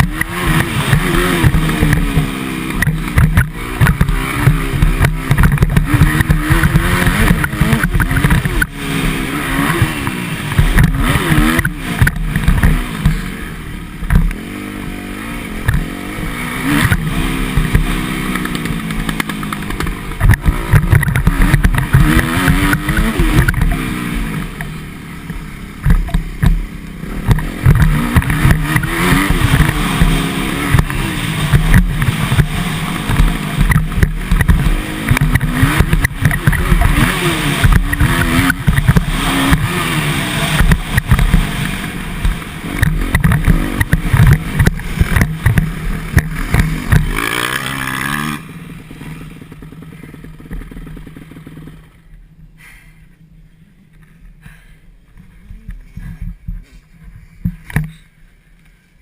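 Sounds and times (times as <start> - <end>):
motocross bike engine revving: 0.0 - 58.2
wind noise on microphone: 55.3 - 57.9.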